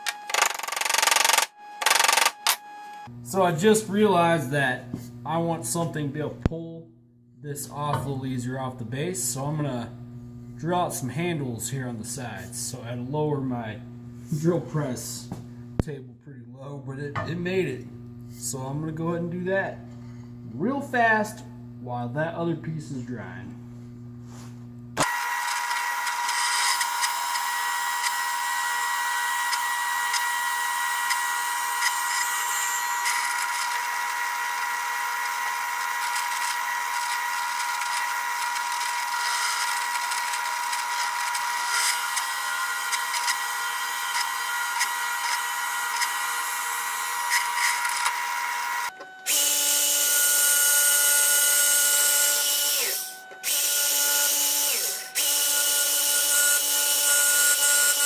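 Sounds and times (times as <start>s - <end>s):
drill press boring into wood: 0.0s - 2.6s, 25.0s - 58.0s
machine humming: 0.0s - 15.8s, 17.1s - 58.0s.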